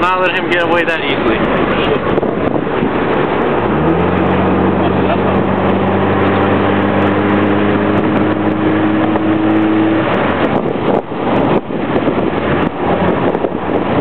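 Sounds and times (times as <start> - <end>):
car engine running hard: 0.0 - 14.0
road and wind noise: 0.0 - 14.0.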